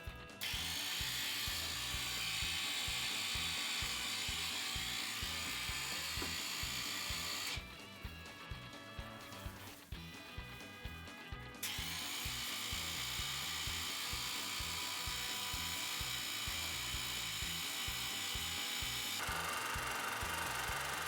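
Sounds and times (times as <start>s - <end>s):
background music: 0.0s - 21.0s
pressure washer spraying water: 0.4s - 7.6s
pressure washer motor whining: 0.4s - 8.0s, 11.6s - 21.0s.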